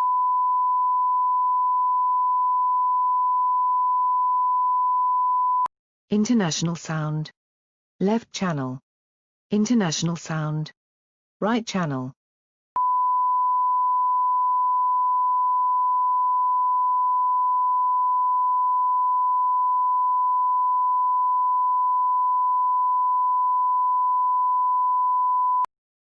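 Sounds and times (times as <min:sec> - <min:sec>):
sine-wave reference tone: 0:00.0 - 0:05.7, 0:12.8 - 0:25.7.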